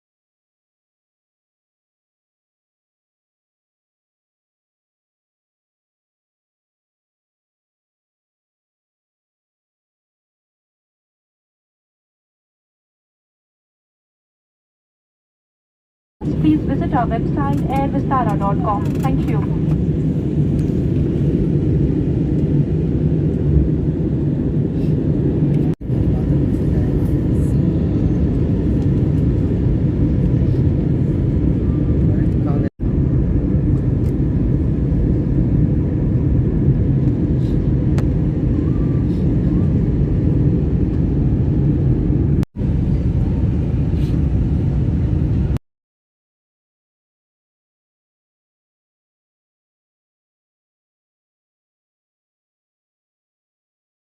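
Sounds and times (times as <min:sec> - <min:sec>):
jet cabin engine rumble: 0:16.2 - 0:45.6.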